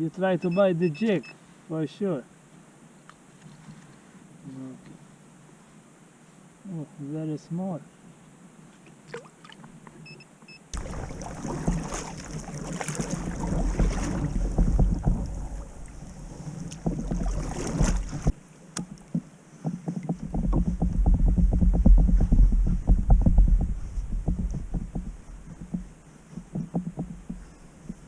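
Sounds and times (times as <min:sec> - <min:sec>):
water against hull: 0:10.7 - 0:28.0
wind on microphone: 0:10.8 - 0:28.0
faint clicks and knocks: 0:13.7 - 0:28.0.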